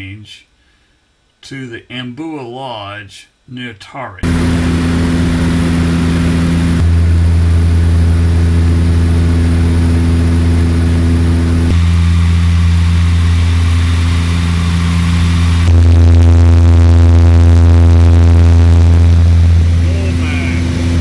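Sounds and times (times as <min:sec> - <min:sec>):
aircraft engine droning: 0:04.2 - 0:21.0.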